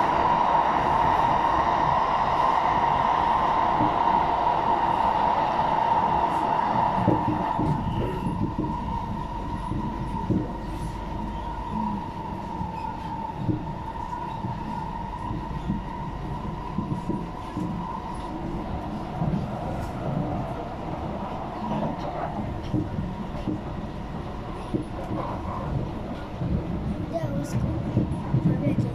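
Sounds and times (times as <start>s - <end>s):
metro train rumble: 0.0s - 28.9s.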